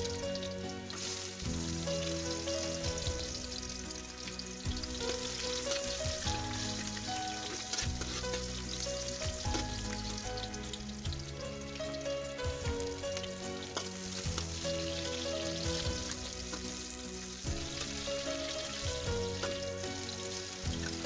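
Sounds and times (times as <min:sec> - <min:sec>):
background music: 0:00.0 - 0:21.0
oil sizzling and crackling in a wok: 0:00.0 - 0:21.0
steel spatula stirring: 0:04.9 - 0:08.8.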